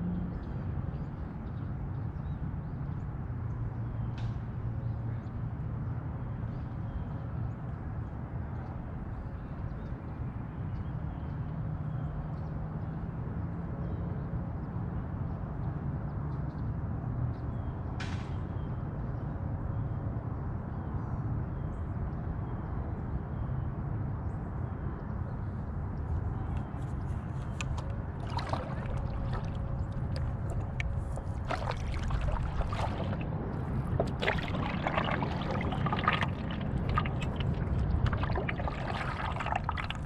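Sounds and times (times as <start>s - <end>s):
low rumble: 28.0s - 40.0s.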